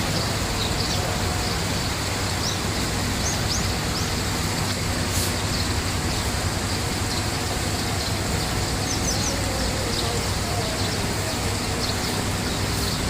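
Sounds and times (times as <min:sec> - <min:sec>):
small birds chirping: 0:00.0 - 0:13.0
steady rushing noise: 0:00.0 - 0:13.0.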